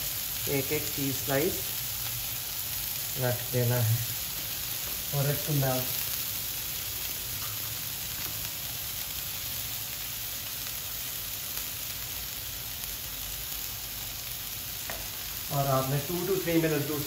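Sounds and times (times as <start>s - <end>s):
burger patties sizzling in oil: 0.0s - 17.0s.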